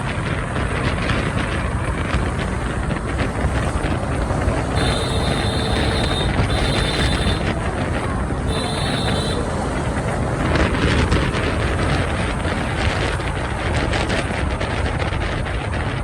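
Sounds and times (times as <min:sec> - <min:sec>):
motorbike engine rumble: 0:00.0 - 0:16.0
street traffic: 0:00.0 - 0:16.0
wind buffeting microphone: 0:00.0 - 0:16.0
horn beeps: 0:04.5 - 0:09.8.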